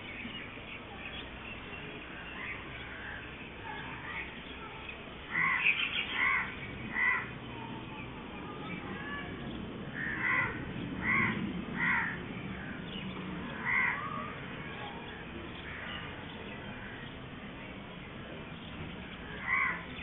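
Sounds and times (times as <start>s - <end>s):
low background noise: 0.0s - 20.0s
bird harsh calls: 5.2s - 7.4s, 19.2s - 20.0s.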